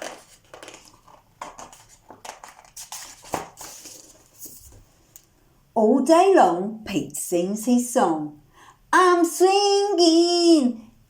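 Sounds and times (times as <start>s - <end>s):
book pages turning: 0.0s - 5.1s.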